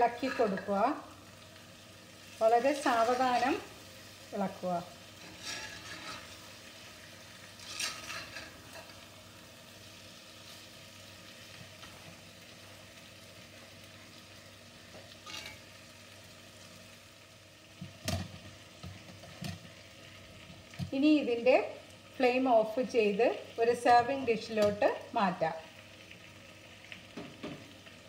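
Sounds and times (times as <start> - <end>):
fish sizzling in a pan: 0.0 - 28.0
spatula scraping a pan: 0.1 - 0.8, 5.2 - 9.0, 15.2 - 15.7.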